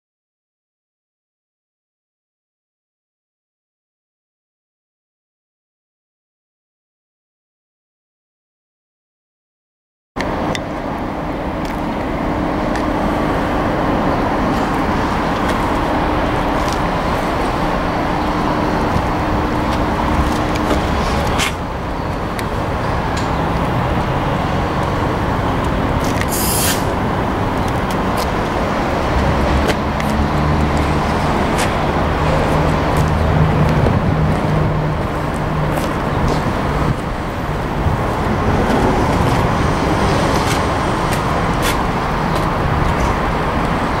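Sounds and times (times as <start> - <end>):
generator diesel engine running: 10.2 - 44.0.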